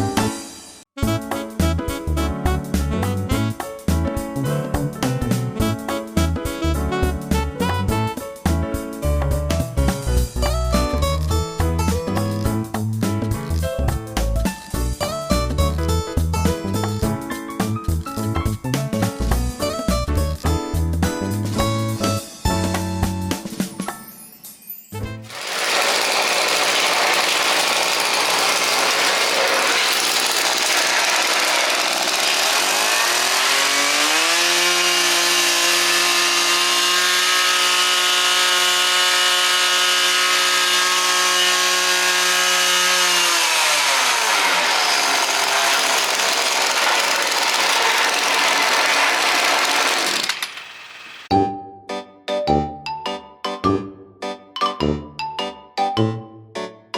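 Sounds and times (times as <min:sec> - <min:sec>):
two-stroke engine revving: 0:25.3 - 0:51.3.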